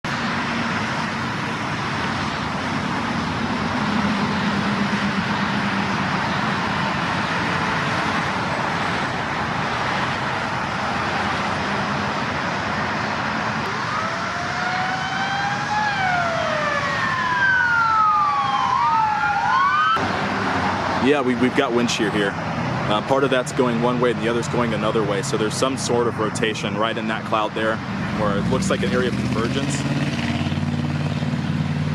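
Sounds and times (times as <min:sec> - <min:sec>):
siren wailing: 0:13.5 - 0:20.1.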